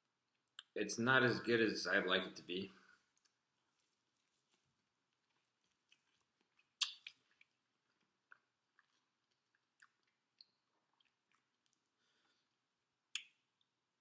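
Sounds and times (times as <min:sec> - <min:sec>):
chewing fried chicken: 0:03.1 - 0:12.8.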